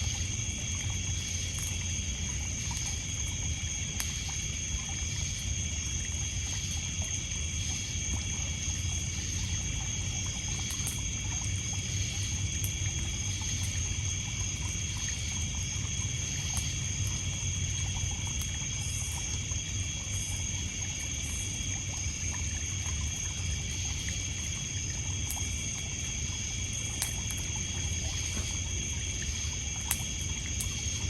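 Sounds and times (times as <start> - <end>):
campfire crackling: 0.0 - 31.0
night insects trilling: 0.0 - 31.0.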